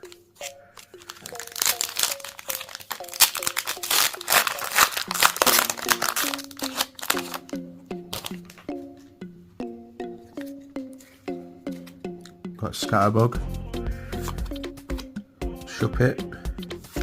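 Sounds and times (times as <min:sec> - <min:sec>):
light plucked background music: 0:00.0 - 0:17.0
foil wrapper crinkling and tearing: 0:00.1 - 0:08.6.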